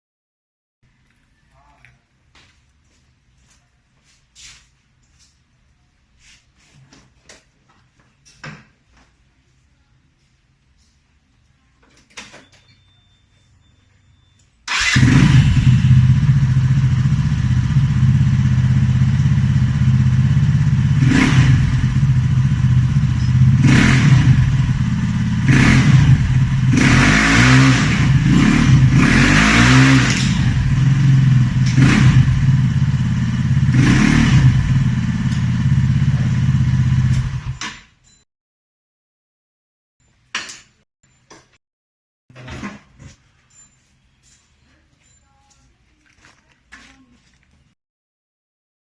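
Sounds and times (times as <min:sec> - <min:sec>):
motorcycle throttle blips: 0:14.0 - 0:37.6
motorcycle engine idling loud: 0:15.0 - 0:26.9, 0:30.5 - 0:37.5.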